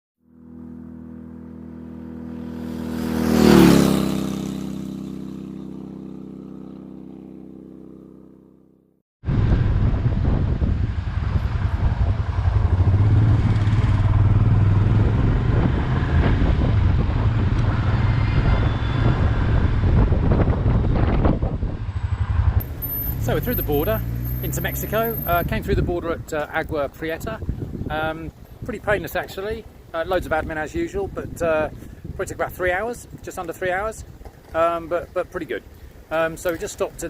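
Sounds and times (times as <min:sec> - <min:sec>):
vehicle engine rumble: 0:00.3 - 0:08.6, 0:09.3 - 0:37.0
steady multi-tone sound: 0:22.6 - 0:24.7.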